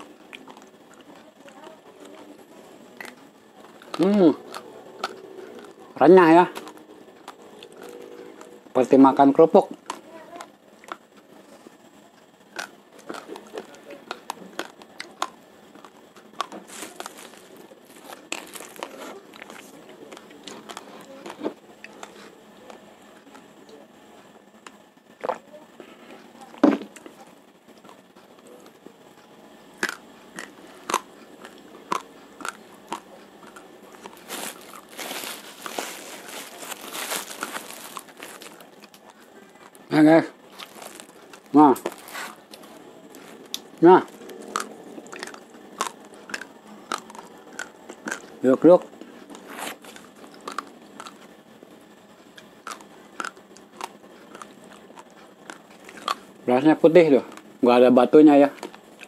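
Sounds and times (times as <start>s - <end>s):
crunching raw rice grains: 12.5s - 23.4s, 29.8s - 51.3s, 52.2s - 59.0s.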